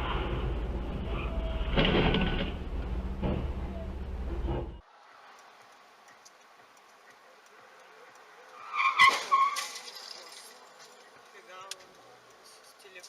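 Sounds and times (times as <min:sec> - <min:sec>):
faint road noise: 0:00.0 - 0:13.0
tyres squealing: 0:08.4 - 0:11.0.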